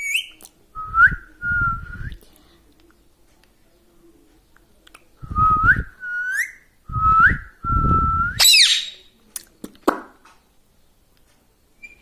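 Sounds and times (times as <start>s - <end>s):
parrot squawk: 8.4s - 9.0s.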